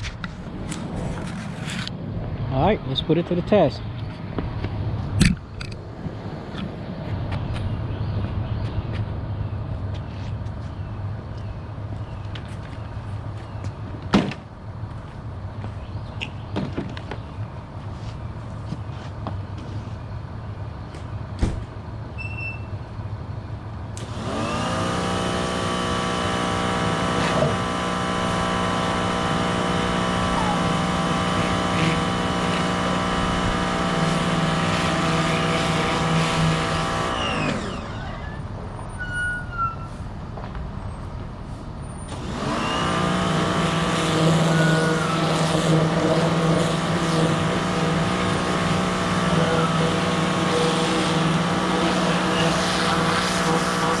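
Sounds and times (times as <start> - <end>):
pressure washer motor running: 24.0 - 38.4, 42.1 - 54.0
low hum: 24.0 - 38.7.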